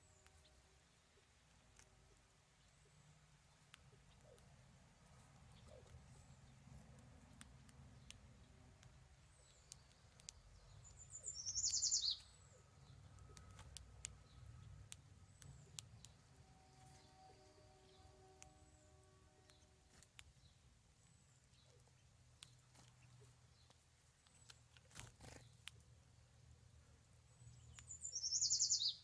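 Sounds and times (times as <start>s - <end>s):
faint clicks: 3.5s - 12.3s, 12.9s - 16.3s, 19.4s - 26.0s
faint high chirps: 9.4s - 20.6s, 27.4s - 29.0s
bird trilling: 11.0s - 12.3s, 27.9s - 29.0s.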